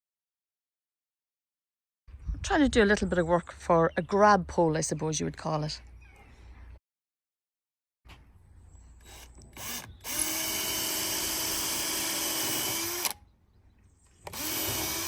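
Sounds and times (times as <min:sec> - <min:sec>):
electric drill drilling into wood: 0:09.0 - 0:13.2, 0:14.3 - 0:15.0.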